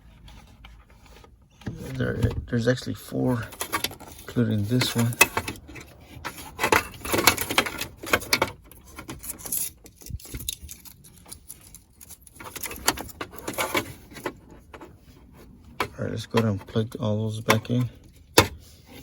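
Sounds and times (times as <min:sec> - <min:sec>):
plastic connectors clicking and rattling: 0:03.4 - 0:14.4.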